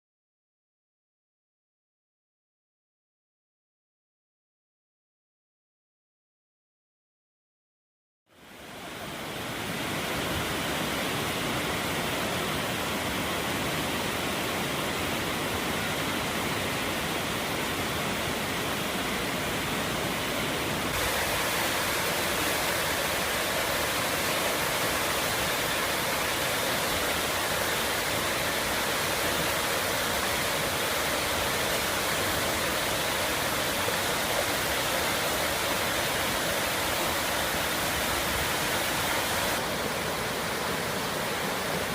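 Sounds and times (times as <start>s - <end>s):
waterfall rushing: 8.4s - 41.9s.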